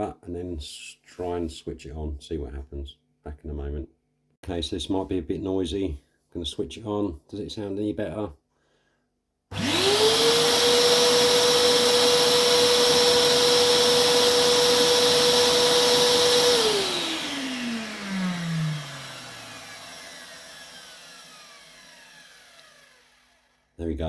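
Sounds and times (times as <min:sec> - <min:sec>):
motor winding down: 0:09.5 - 0:23.7
vacuum cleaner whine: 0:09.5 - 0:23.7.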